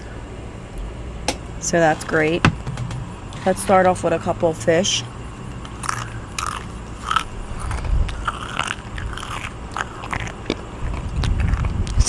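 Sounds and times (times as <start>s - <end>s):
person chewing with dentures: 5.8s - 12.0s.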